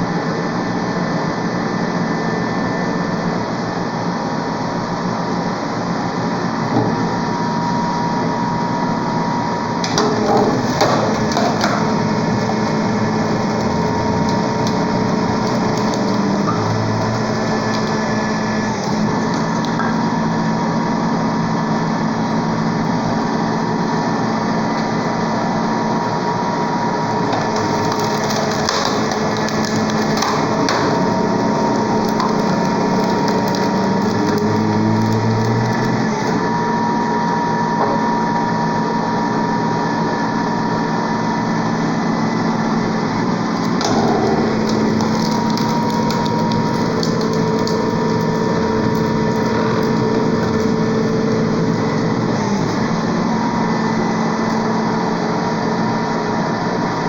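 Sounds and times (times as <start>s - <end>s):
log splitter motor humming: 0.0s - 57.0s.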